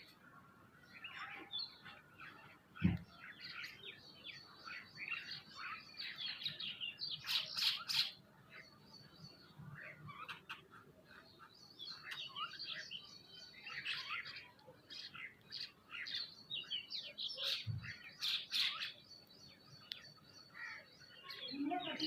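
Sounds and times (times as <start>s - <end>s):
birds chirping: 0.0s - 22.0s
low thud: 2.8s - 3.1s.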